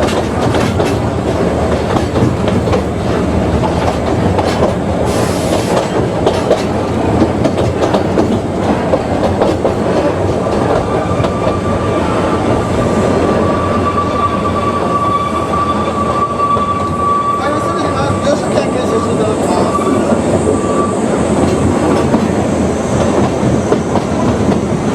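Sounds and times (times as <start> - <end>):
train rumble with clickety-clack: 0.0 - 24.9
wheel squeal: 13.4 - 21.1.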